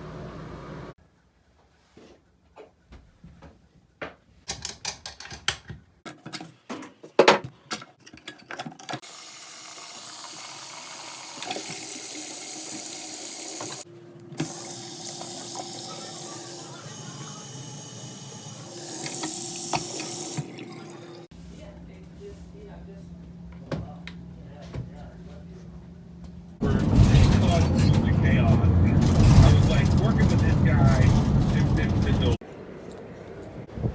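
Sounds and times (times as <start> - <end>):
faucet water running into sink: 9.0 - 13.8, 14.4 - 21.3.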